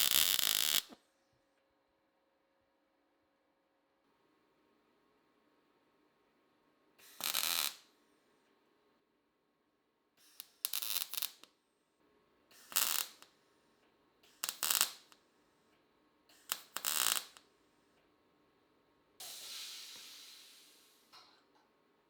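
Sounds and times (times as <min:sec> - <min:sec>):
mig welder welding: 0:00.0 - 0:01.0, 0:07.0 - 0:07.8, 0:10.2 - 0:11.5, 0:12.6 - 0:13.3, 0:14.3 - 0:15.2, 0:16.3 - 0:17.4
welder click: 0:00.0 - 0:01.0.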